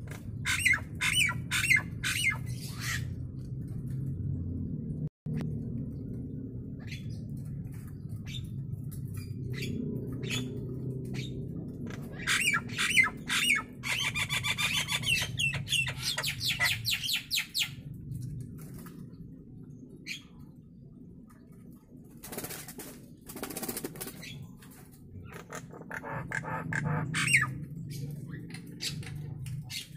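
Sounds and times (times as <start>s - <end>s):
low hum: 0.0s - 16.9s, 24.4s - 29.9s.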